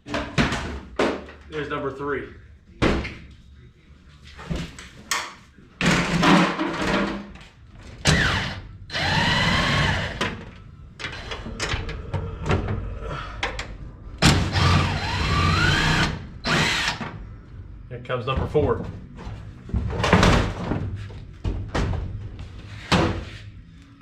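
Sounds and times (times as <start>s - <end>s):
cordless power tool whining: 8.1s - 10.2s, 14.5s - 17.0s
metal knocks and clunks: 18.3s - 23.3s.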